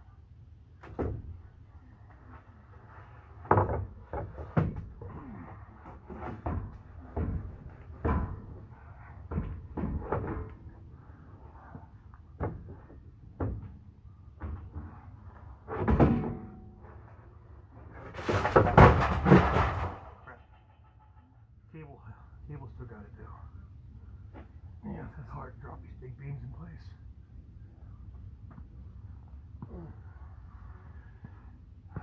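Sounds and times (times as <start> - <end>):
heavy knocks and clunks: 3.4 - 10.9, 11.6 - 16.8, 18.0 - 21.3
loud clatter: 18.1 - 21.3.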